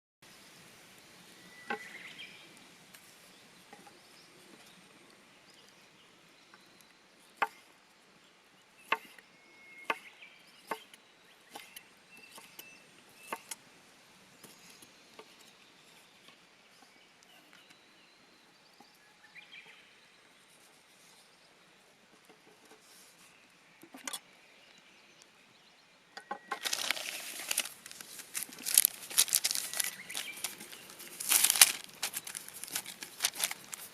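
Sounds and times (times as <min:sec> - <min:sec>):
dense crinkling: 0:26.5 - 0:33.9.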